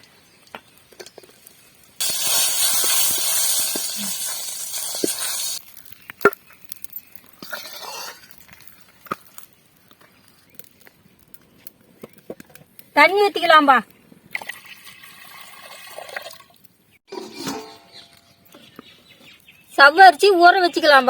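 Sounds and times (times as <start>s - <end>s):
ghee sizzling in a pan: 1.2s - 8.6s.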